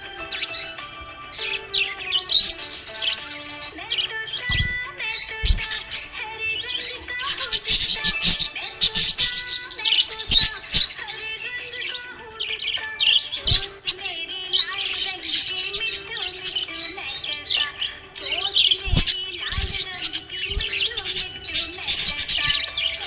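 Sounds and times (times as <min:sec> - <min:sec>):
budgerigars chirping and warbling: 0:00.0 - 0:23.0
low thuds: 0:04.5 - 0:05.9.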